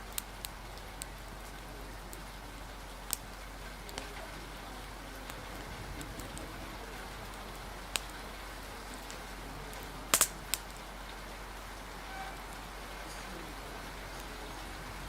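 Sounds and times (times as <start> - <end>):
rain hiss: 0.0 - 15.0
sharp clicks: 10.1 - 10.7.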